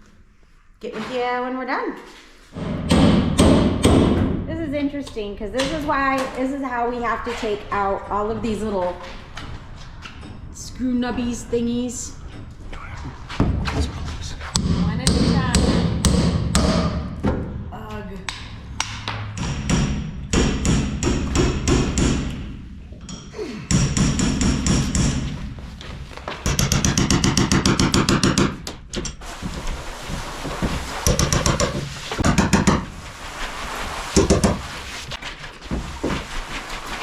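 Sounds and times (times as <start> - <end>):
hammering: 2.5 - 4.5, 5.1 - 33.2, 34.1 - 34.9.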